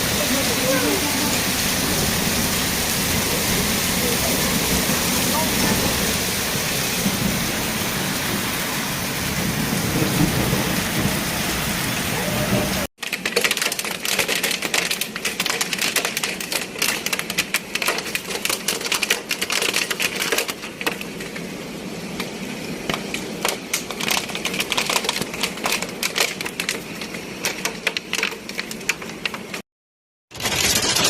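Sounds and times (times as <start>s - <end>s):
heavy rain hiss: 0.0s - 12.9s
hail clattering on hard surfaces: 0.0s - 29.6s, 30.3s - 31.0s.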